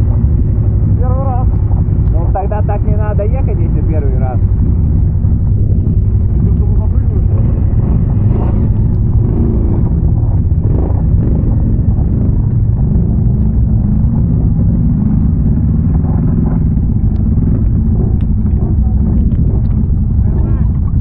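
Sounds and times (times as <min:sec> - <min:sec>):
atv engine rumbling: 0:00.0 - 0:21.0.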